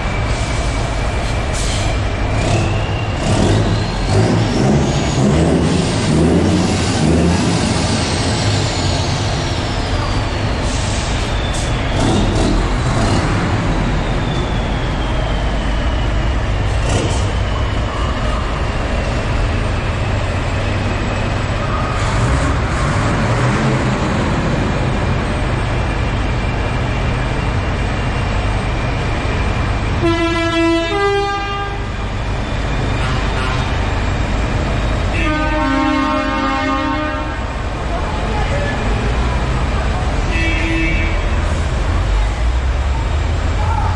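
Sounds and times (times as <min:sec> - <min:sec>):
heavy truck engine running: 0:00.0 - 0:43.9
high falling whistle: 0:13.7 - 0:16.3
multi-note air horn: 0:30.0 - 0:31.8, 0:35.1 - 0:37.4.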